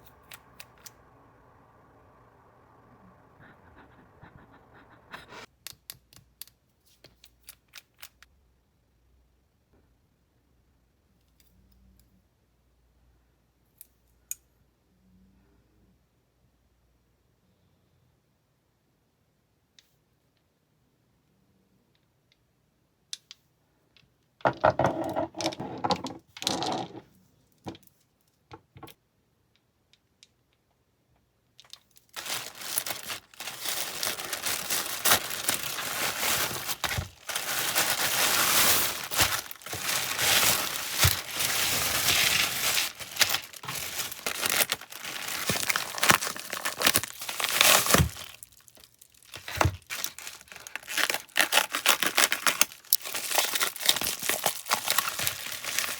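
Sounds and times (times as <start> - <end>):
packaging crinkling and tearing: 31.7 - 55.9.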